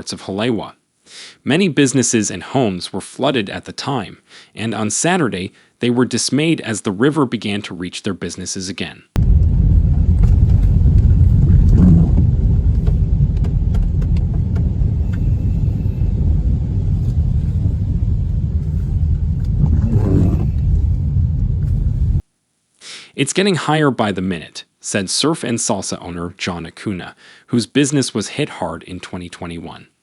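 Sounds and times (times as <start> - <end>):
loud low rumble: 9.2 - 22.2.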